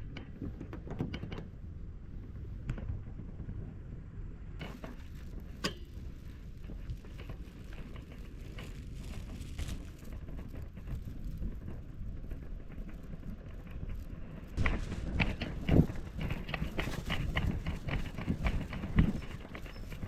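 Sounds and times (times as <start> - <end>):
light clicks and knocks: 0.0 - 1.6
low outdoor rumble: 0.0 - 20.0.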